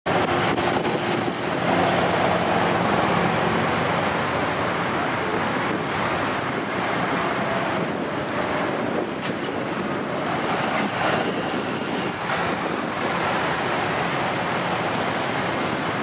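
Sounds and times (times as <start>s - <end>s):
wind noise on microphone: 0.1s - 16.0s.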